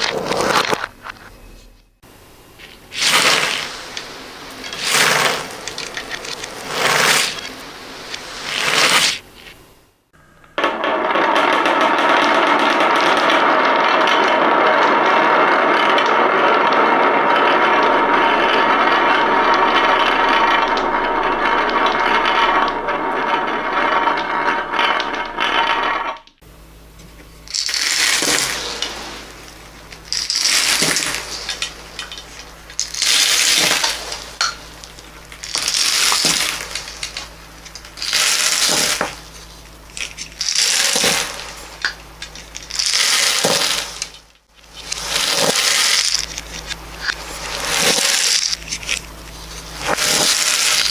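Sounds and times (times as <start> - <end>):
small hard objects clattering: 0.0 - 1.3, 2.4 - 9.9, 27.1 - 50.9
short rattling rushes: 2.5 - 9.8.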